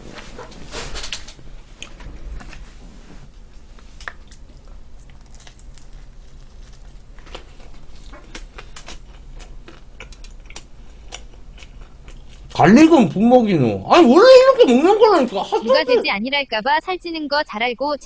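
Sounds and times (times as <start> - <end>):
low steady hum: 0.0 - 18.0
mouth chewing clicks and smacks: 8.0 - 12.6.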